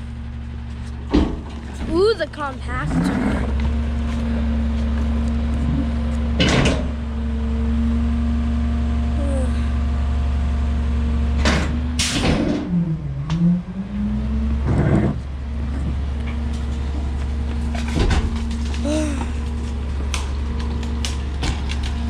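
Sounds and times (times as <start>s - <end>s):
loud metal clanks: 6.4s - 7.0s, 11.4s - 12.8s.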